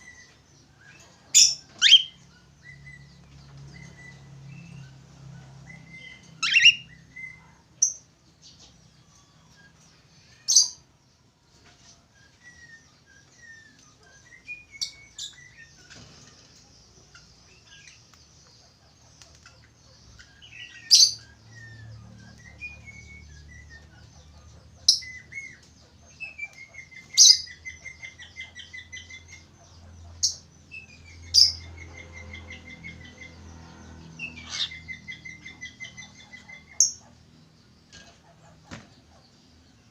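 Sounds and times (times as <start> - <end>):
budgerigar warbling: 34.2 - 34.9
trilled bird calls: 34.2 - 37.1.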